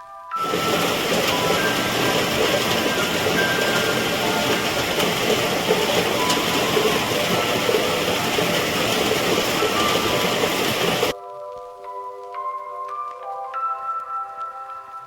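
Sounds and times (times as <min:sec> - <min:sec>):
steady rain hiss: 0:00.4 - 0:13.3
soft mallet percussion music: 0:11.2 - 0:15.0.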